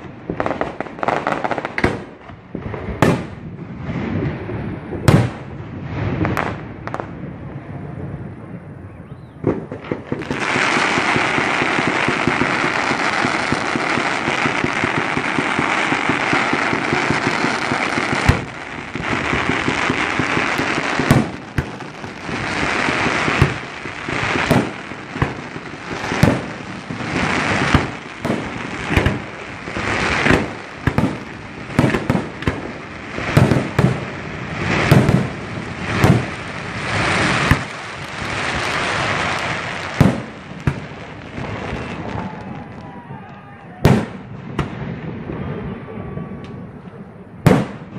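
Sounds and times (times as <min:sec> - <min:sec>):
fireworks bangs: 0:00.0 - 0:47.9
fireworks crackling and hissing: 0:00.0 - 0:47.9.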